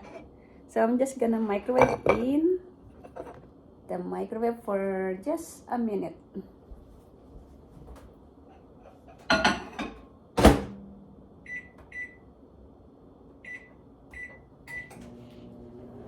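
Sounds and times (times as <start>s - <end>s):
microwave door shutting: 10.4s - 10.8s.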